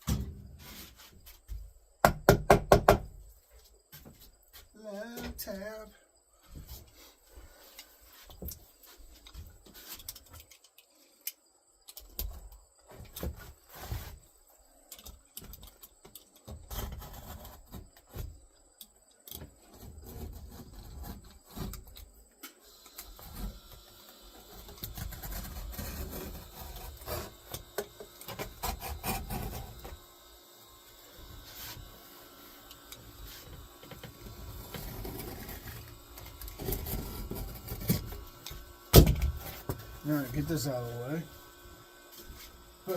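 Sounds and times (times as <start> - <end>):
rubbing and scraping: 0.5 - 1.5, 12.9 - 14.4, 16.5 - 18.5, 19.5 - 22.2, 24.4 - 30.0, 33.2 - 38.4
knocks and taps on wood: 2.0 - 3.0.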